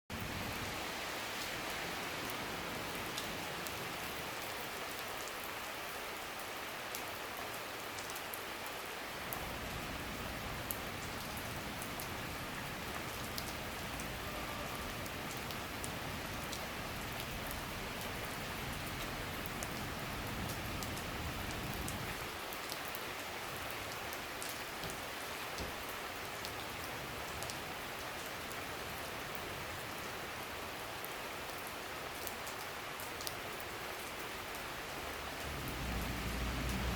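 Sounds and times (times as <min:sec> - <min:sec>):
rain falling steadily: 0:00.1 - 0:36.9
low rumble: 0:35.4 - 0:36.9.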